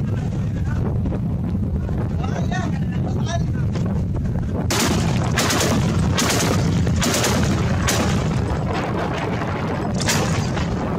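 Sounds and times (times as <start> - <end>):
steady low rumble: 0.0 - 10.9
gunshots with echo: 4.7 - 9.0, 9.9 - 10.9.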